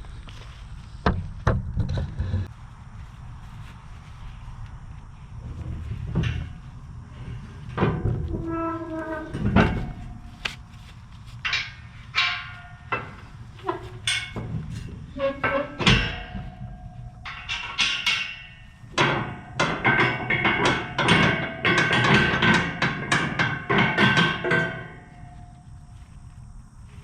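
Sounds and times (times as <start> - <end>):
steady low rumble: 0.0 - 21.0
metallic chain clanks and rattles: 6.0 - 10.4, 11.4 - 25.6.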